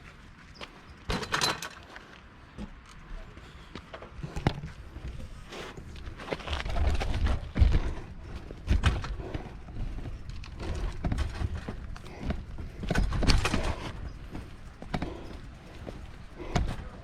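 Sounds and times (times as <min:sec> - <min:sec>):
footsteps on loose rocks: 0:03.7 - 0:17.0.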